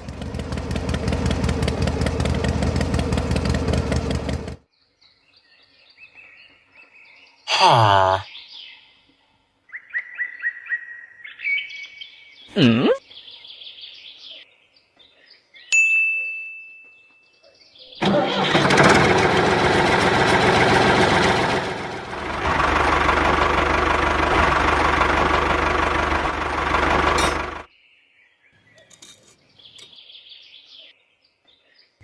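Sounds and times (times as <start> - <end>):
deeper rumble: 18.3 - 27.7
motor running loudly: 18.5 - 27.7.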